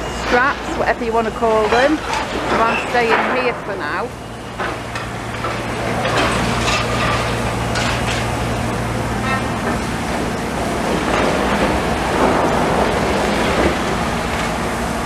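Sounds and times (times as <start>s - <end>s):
diesel engine humming: 0.0s - 15.0s
sharp metal clanks and scrapes: 6.0s - 8.2s.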